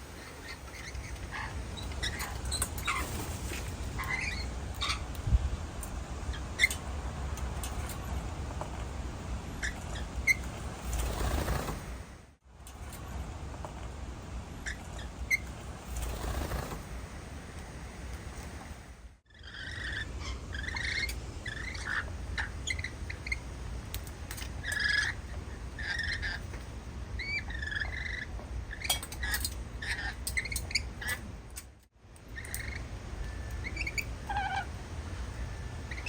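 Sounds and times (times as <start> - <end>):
small birds chirping: 0.0 - 13.8, 14.6 - 31.6, 32.2 - 36.0
steady low rumble: 0.0 - 19.2.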